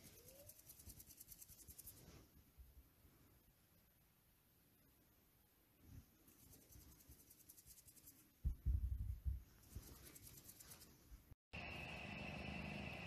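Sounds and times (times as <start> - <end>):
low thumps: 8.4 - 9.5
hum with high whine: 11.6 - 13.0.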